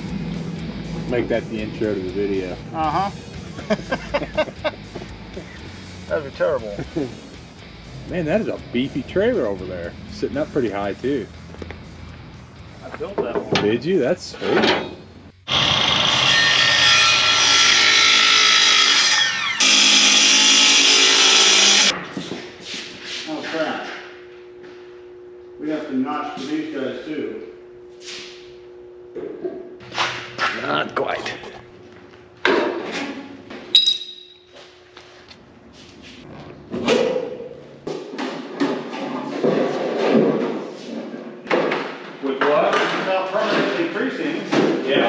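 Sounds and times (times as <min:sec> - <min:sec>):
power tool running under load: 0:15.4 - 0:22.0.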